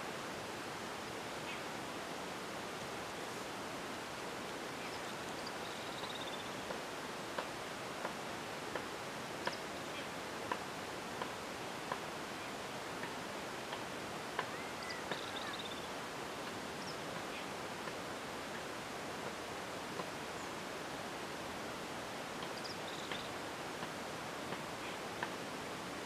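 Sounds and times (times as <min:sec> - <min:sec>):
steady hiss: 0:00.0 - 0:26.0
curving bird call: 0:14.5 - 0:15.8.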